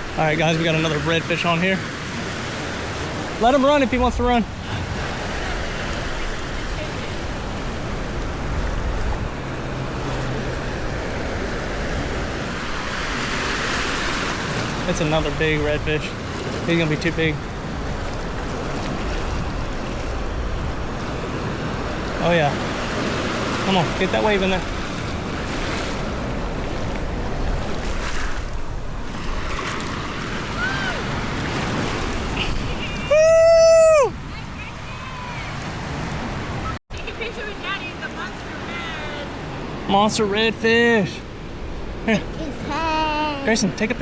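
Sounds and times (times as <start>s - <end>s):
surf washing on beach: 0.0s - 44.0s
wind rumbling on microphone: 2.8s - 16.6s, 17.4s - 23.6s.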